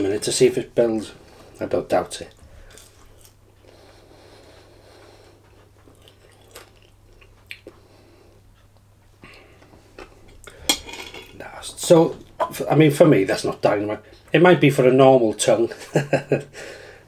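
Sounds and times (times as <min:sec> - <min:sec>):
person chewing food: 0:02.3 - 0:10.6.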